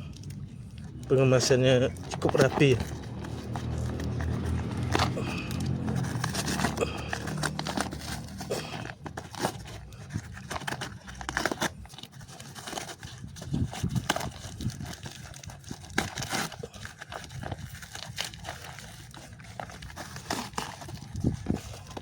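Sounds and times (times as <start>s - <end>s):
plastic wrap crinkling and tearing: 0.0s - 22.0s.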